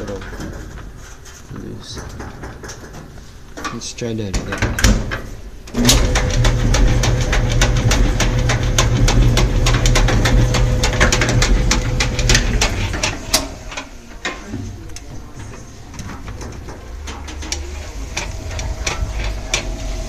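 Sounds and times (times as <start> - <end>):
rapid clicking and rattling: 0.0 - 20.0
washer-dryer motor hum and whine: 5.7 - 20.0.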